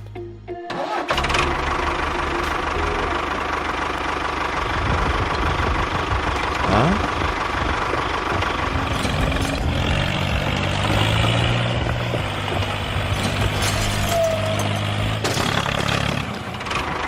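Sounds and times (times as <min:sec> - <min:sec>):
engine running: 0:00.0 - 0:17.0
deep steady hum: 0:00.1 - 0:13.6.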